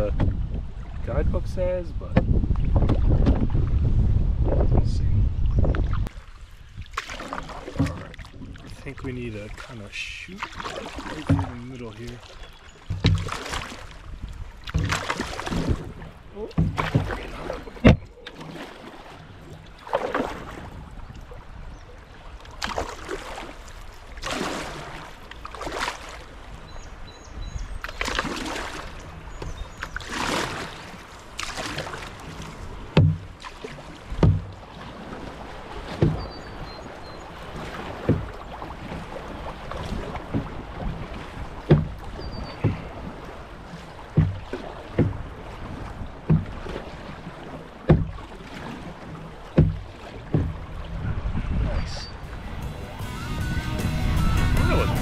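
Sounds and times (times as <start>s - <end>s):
canoe paddle strokes splashing: 0.0s - 4.6s, 5.6s - 55.0s
short sharp low knocks: 11.2s - 11.7s, 32.9s - 33.4s, 34.2s - 34.6s, 44.1s - 45.3s, 47.9s - 48.2s, 49.6s - 50.7s.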